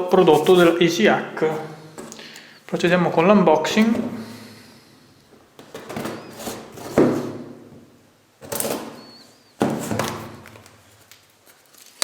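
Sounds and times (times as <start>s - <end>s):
cardboard box knocks and scrapes: 5.9s - 7.4s.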